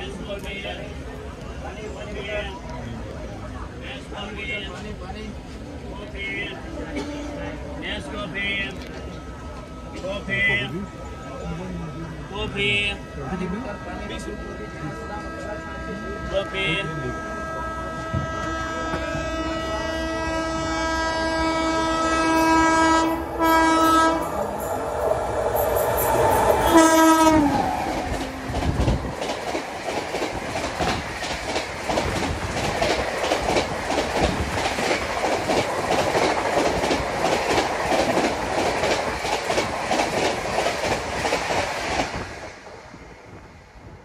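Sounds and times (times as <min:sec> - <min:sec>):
train horn: 0:06.7 - 0:08.1, 0:13.4 - 0:29.0
train wheels clattering over rail joints: 0:27.3 - 0:42.2.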